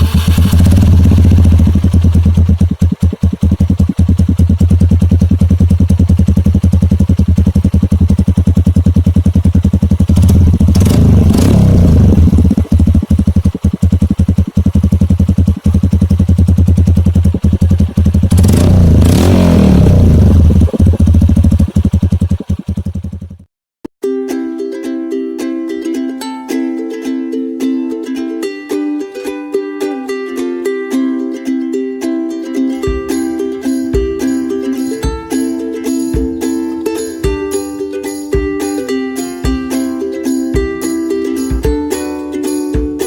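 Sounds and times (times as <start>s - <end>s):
motorcycle engine idling and revving: 0.0s - 23.5s, 32.8s - 43.0s.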